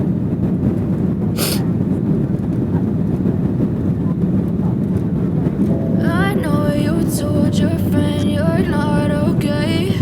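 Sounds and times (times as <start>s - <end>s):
airliner cabin rumble: 0.0s - 10.0s
short hiss: 1.4s - 1.6s.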